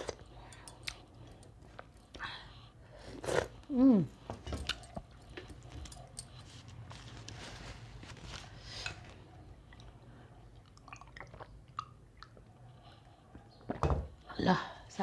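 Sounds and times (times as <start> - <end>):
person drinking: 9.7 - 12.5.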